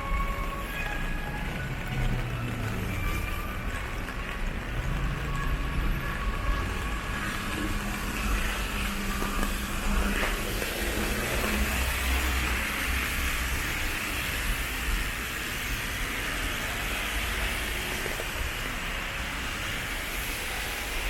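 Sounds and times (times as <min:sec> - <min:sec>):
vehicle engines rumbling: 0:00.0 - 0:21.0
hiss of passing traffic: 0:04.5 - 0:21.0.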